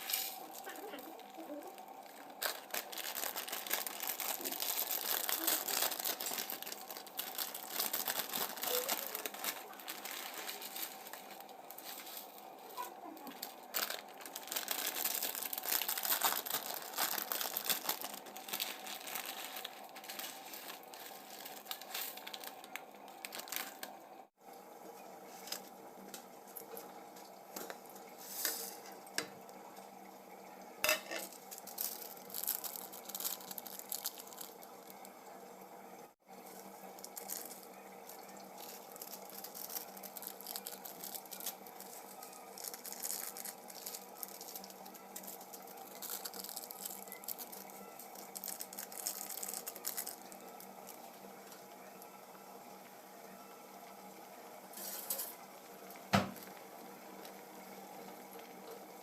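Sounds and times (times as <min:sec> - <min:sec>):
packaging tearing: 0:00.0 - 0:24.0, 0:31.2 - 0:34.6, 0:37.0 - 0:51.0
plastic packaging crinkling: 0:00.0 - 0:24.1, 0:30.9 - 0:35.1, 0:36.4 - 0:52.0, 0:54.8 - 0:58.8.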